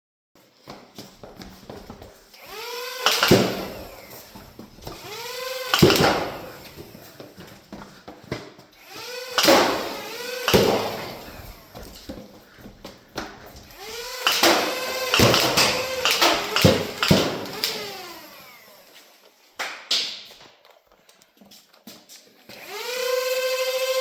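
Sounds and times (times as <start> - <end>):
toy dart blaster firing: 2.5 - 4.2, 5.0 - 6.6, 8.8 - 11.6, 13.8 - 18.4.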